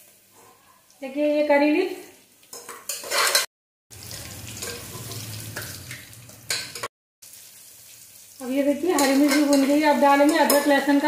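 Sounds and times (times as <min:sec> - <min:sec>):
food sizzling in hot oil: 0:00.0 - 0:11.0
steel spoon scraping a pot: 0:02.6 - 0:03.5.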